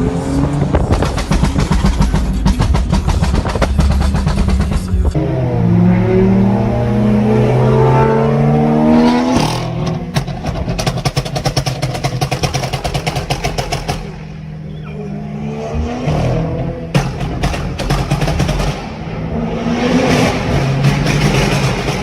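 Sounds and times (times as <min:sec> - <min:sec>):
car engine accelerating: 0:00.0 - 0:22.0
exhaust crackles and pops: 0:00.6 - 0:05.2.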